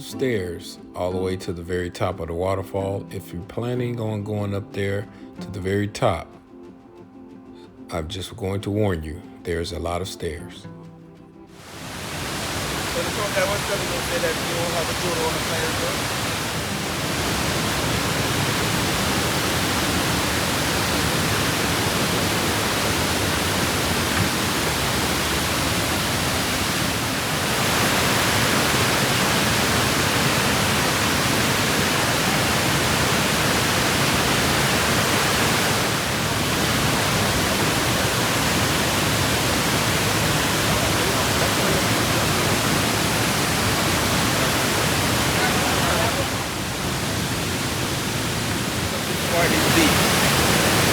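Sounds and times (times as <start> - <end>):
waterfall roaring: 11.6 - 50.9.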